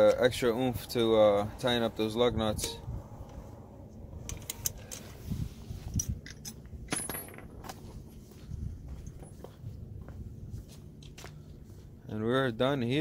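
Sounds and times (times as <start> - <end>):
metallic clicks of hand tools: 4.2 - 5.1.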